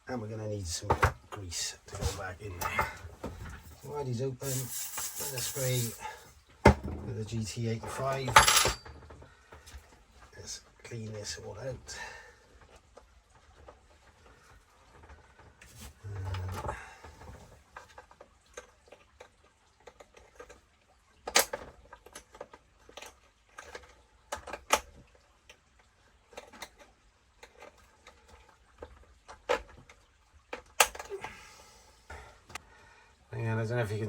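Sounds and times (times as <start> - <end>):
small tools clicking and knocking: 3.6 - 7.0.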